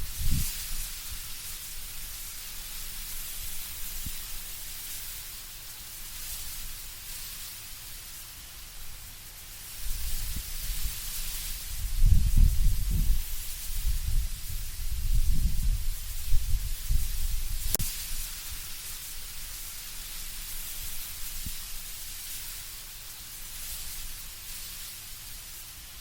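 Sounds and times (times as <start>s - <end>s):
deep wind gusts: 0.0s - 0.5s, 11.6s - 17.8s
leaves rustling in wind: 0.0s - 26.0s.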